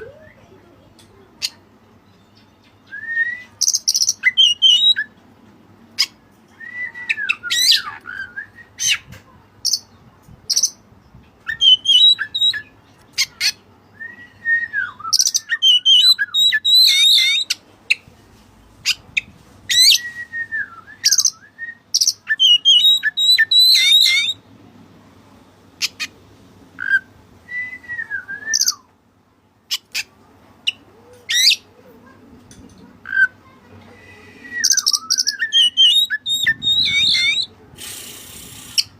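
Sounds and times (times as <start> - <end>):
songbird singing with whistles: 2.4 - 5.2, 6.0 - 9.1, 11.5 - 12.7, 13.9 - 17.6, 19.7 - 24.4, 26.8 - 28.9, 34.1 - 37.5.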